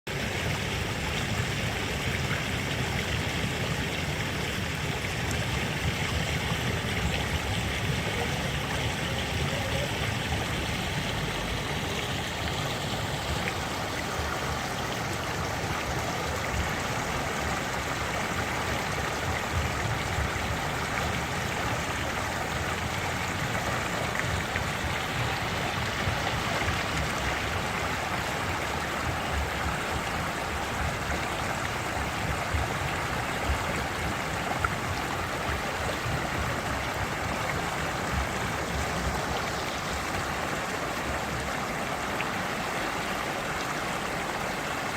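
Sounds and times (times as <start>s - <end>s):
stream rushing over rocks: 0.1s - 44.9s.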